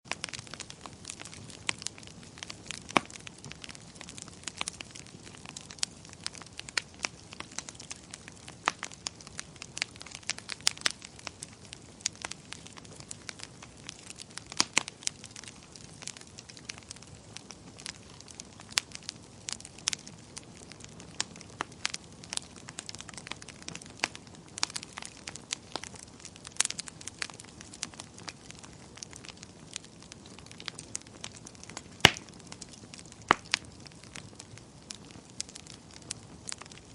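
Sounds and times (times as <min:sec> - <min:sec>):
fire crackling: 0:00.1 - 0:36.9.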